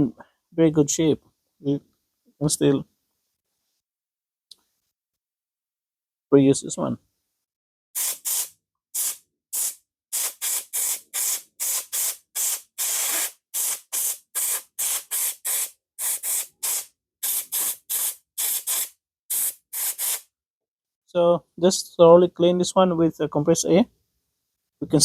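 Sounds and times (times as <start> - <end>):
compressed air blow gun hissing: 8.0 - 20.3.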